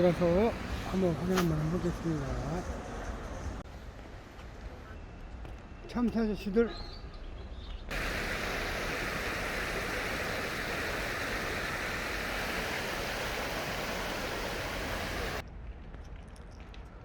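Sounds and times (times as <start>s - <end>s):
stream water flowing: 7.9s - 15.4s.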